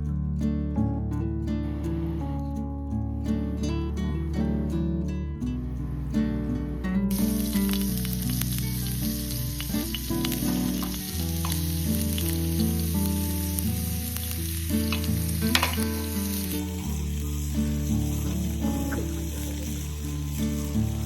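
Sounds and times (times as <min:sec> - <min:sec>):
background music: 0:00.0 - 0:21.0
food sizzling in a pan: 0:07.1 - 0:21.0.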